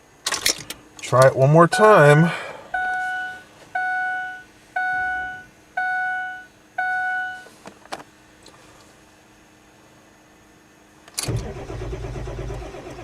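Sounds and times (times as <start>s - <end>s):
dashboard warning chime beeping: 1.5s - 7.5s.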